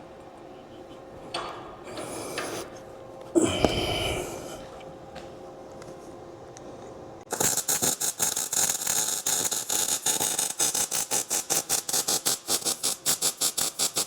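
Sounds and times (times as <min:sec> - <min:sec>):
welding arc crackling sizzle: 0:07.3 - 0:14.0.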